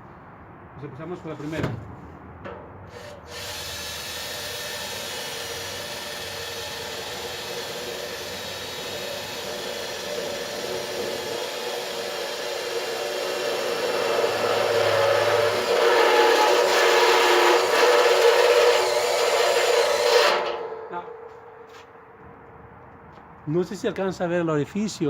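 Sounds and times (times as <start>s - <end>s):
electric drill boring through steel: 2.9s - 20.9s.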